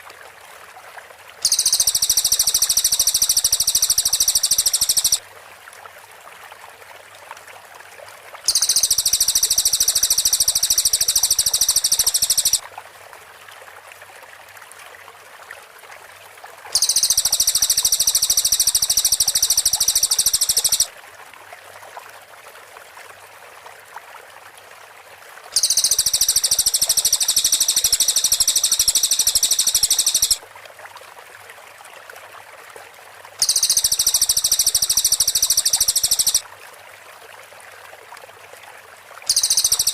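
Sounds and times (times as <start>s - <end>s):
songbird high rapid chattering: 1.4s - 5.2s, 8.5s - 12.6s, 16.8s - 20.9s, 25.6s - 30.4s, 33.4s - 36.4s, 39.3s - 39.9s.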